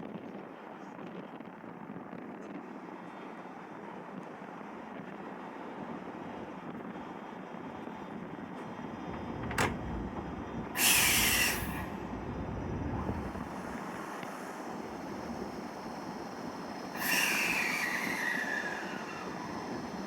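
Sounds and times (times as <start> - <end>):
train low rumble: 0.1 - 20.0
compressed air hiss: 10.8 - 12.1, 16.9 - 19.6.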